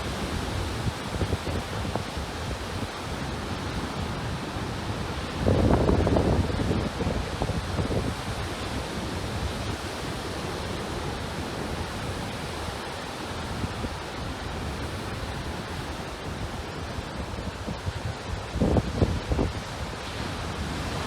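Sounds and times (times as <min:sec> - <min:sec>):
wind buffeting microphone: 0:00.0 - 0:12.8.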